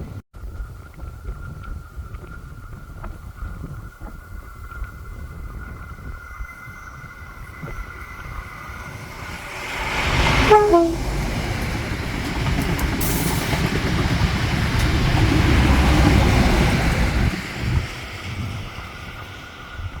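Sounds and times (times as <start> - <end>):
diesel train rumbling past: 6.2 - 20.0
train horn: 9.4 - 11.6.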